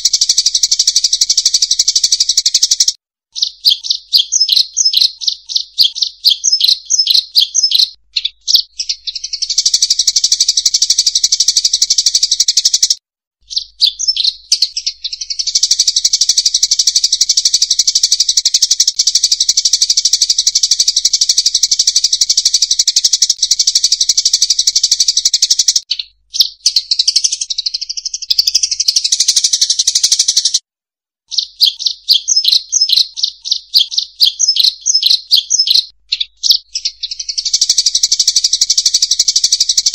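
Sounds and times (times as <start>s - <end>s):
flock of birds chirping: 0.0s - 20.8s, 31.4s - 39.9s.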